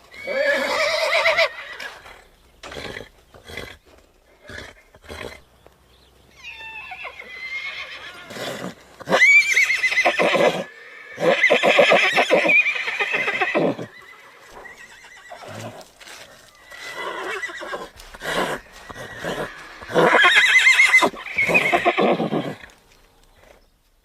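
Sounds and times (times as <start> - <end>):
horse whinnying: 0.1 - 3.8, 4.4 - 5.4, 6.3 - 22.8
horse breath noise: 14.4 - 20.5.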